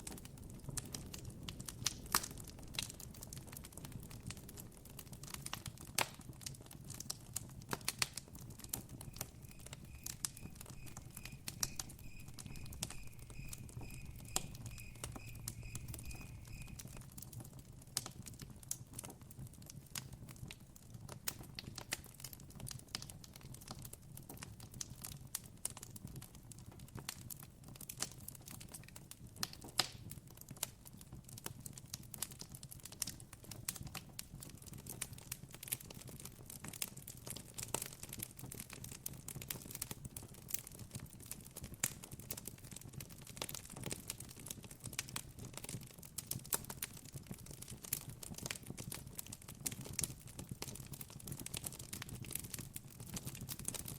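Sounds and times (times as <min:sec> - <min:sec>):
campfire crackling and popping: 0:00.0 - 0:53.9
high chirps: 0:08.7 - 0:17.0.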